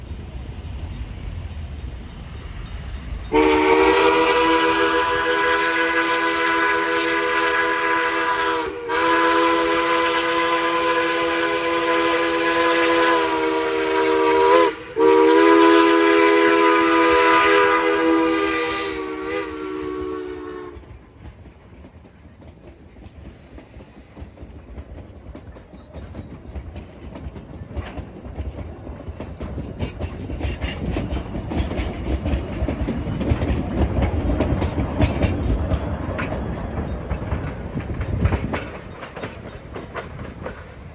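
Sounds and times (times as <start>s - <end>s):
wheels clacking on rail joints: 0.0s - 8.6s, 9.8s - 40.9s
train rumbling past: 0.0s - 40.9s
steam locomotive chime whistle: 3.0s - 20.9s.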